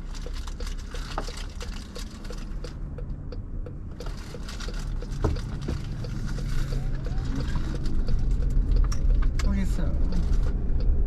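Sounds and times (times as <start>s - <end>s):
low road rumble: 0.0s - 11.0s
light ticking: 0.2s - 11.0s.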